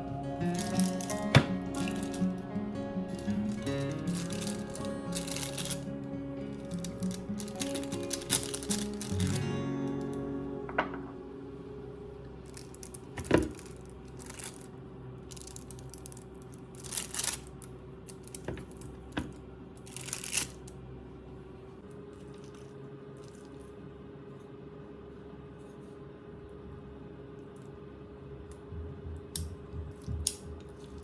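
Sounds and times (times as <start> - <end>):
faint steady hum: 0.0 - 31.0
packaging tearing and crinkling: 0.5 - 2.4, 3.1 - 5.9, 6.5 - 9.4, 12.5 - 14.7, 16.8 - 17.5, 19.9 - 20.6.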